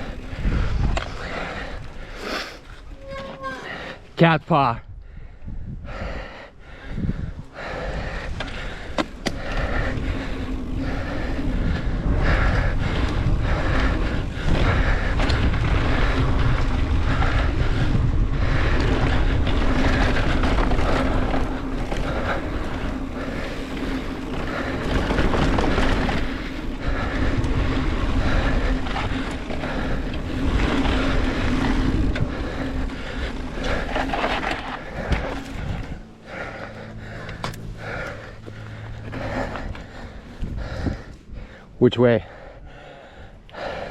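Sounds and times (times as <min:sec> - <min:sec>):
bike tyres rattling over dirt: 0:00.0 - 0:04.8, 0:06.9 - 0:41.7
wind rumble on microphone: 0:00.0 - 0:43.9.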